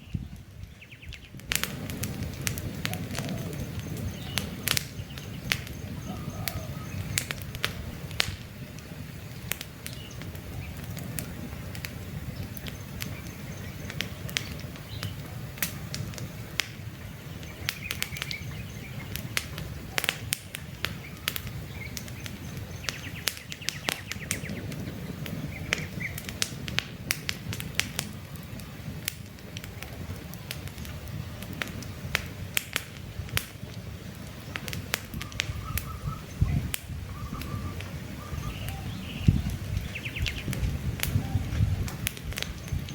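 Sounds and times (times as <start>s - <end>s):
campfire crackling and popping: 0.0s - 42.9s
faint bird chirps: 2.9s - 7.3s, 35.2s - 40.5s.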